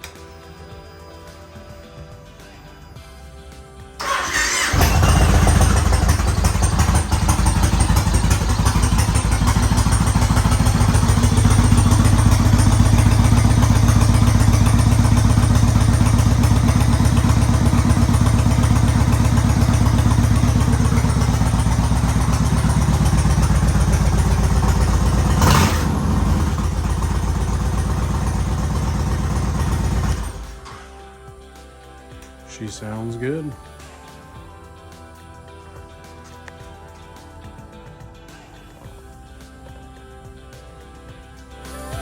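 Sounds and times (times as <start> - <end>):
motorcycle engine idling: 4.0 - 30.7.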